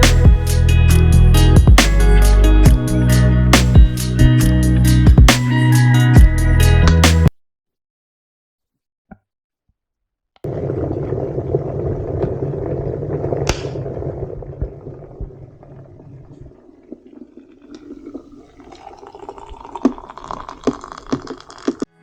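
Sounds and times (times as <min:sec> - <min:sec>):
wind buffeting microphone: 0:10.5 - 0:16.6.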